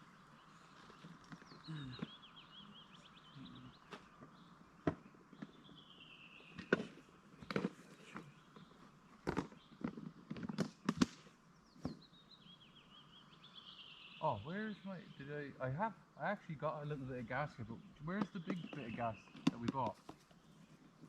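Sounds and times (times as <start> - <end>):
songbird trilling: 11.6 - 19.8.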